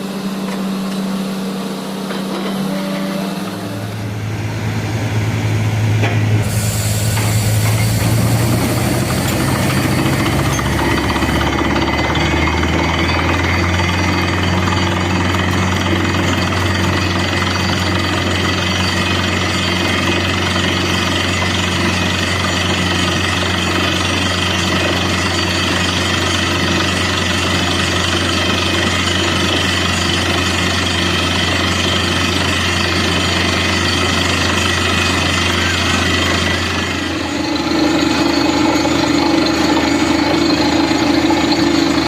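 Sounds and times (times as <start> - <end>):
drilling rig engine and compressor: 0.0 - 42.0
drill hammering into ground: 6.0 - 42.0.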